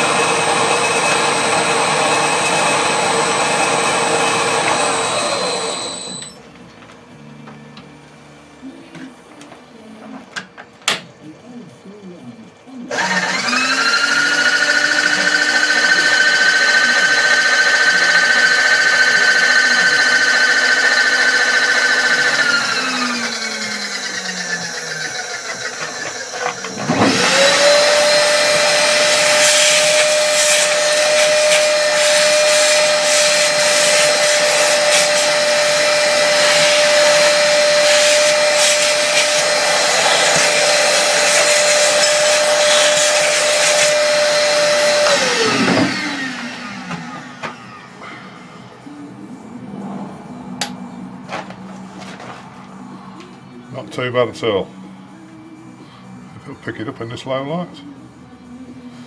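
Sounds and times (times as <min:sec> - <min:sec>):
machine motor starting up: 0:00.0 - 0:06.4, 0:12.9 - 0:48.6
machine-tool motor whining: 0:00.0 - 0:06.4, 0:12.9 - 0:48.7.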